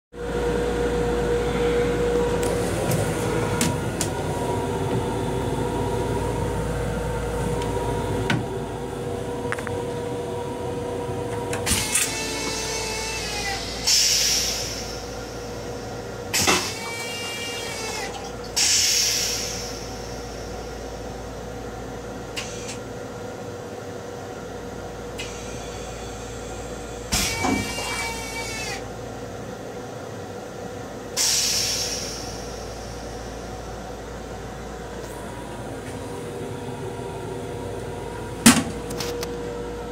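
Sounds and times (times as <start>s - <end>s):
train rumble and hum: 0.2s - 27.2s, 30.0s - 39.9s
toilet flushing: 11.5s - 20.6s, 25.2s - 28.8s.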